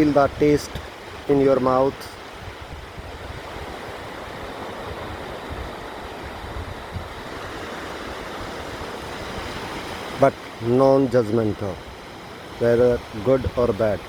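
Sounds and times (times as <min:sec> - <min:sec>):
sea surf rushing: 0:00.0 - 0:14.0
wind: 0:00.0 - 0:14.0.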